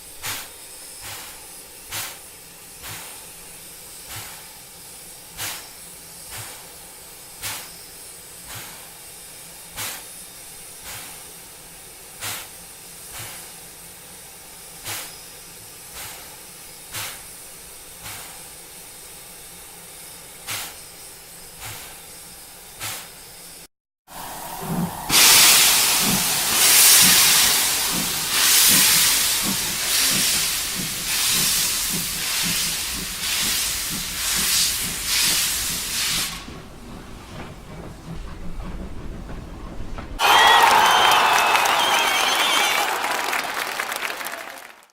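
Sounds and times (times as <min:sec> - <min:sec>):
steam locomotive chuffing: 0:00.0 - 0:23.1, 0:24.1 - 0:43.6
steam hissing: 0:00.0 - 0:23.5, 0:24.1 - 0:42.8.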